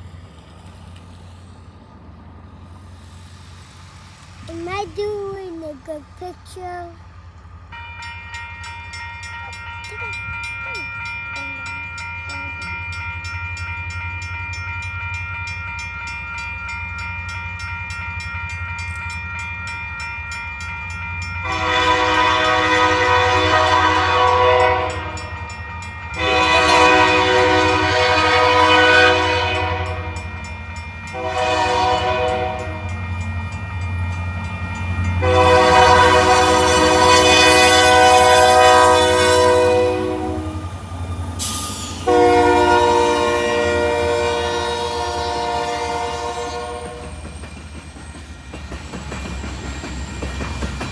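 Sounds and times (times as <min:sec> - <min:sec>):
locomotive air horn blasts: 0:21.4 - 0:25.3, 0:26.2 - 0:30.2, 0:31.2 - 0:32.9, 0:35.2 - 0:40.6, 0:42.0 - 0:47.1.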